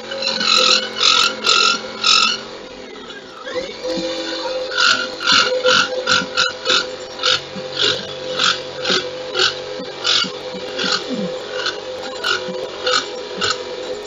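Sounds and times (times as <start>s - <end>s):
rap music through car subwoofers: 3.2s - 14.0s.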